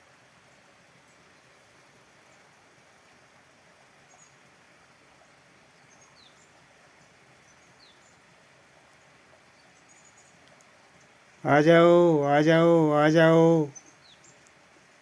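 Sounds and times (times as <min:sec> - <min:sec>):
faint background hiss: 0:00.0 - 0:15.0
small birds chirping: 0:04.0 - 0:04.5, 0:05.7 - 0:14.6.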